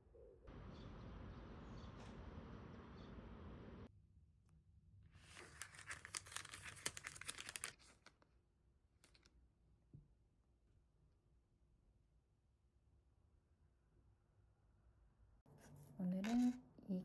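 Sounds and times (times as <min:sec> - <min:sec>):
wrapping crinkling and tearing: 0:05.2 - 0:08.2.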